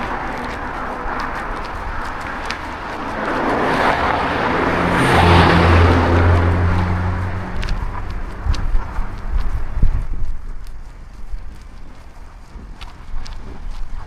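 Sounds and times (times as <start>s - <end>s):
vehicle passing on road: 0.0s - 14.0s.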